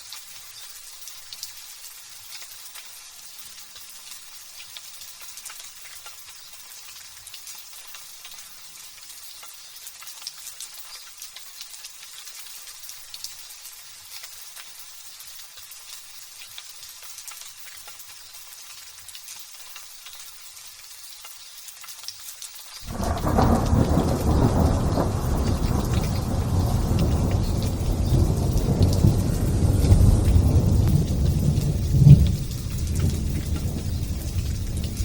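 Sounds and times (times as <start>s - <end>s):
light drizzle pattering: 0.0s - 35.0s
deep rolling thunder: 22.8s - 35.0s.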